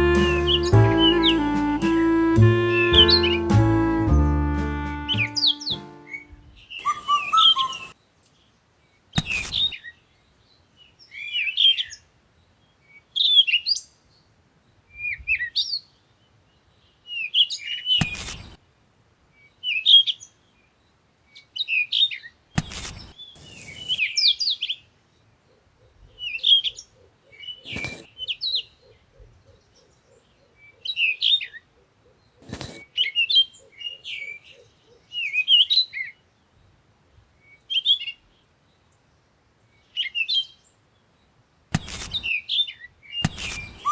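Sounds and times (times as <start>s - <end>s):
small birds chirping: 5.0s - 8.5s, 23.0s - 24.8s, 41.8s - 43.9s.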